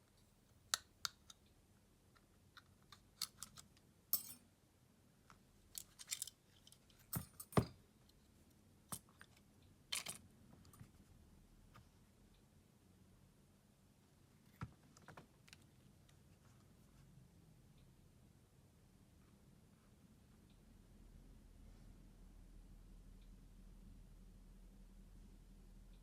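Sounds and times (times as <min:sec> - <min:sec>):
clicks and taps of tools: 0:05.8 - 0:07.8.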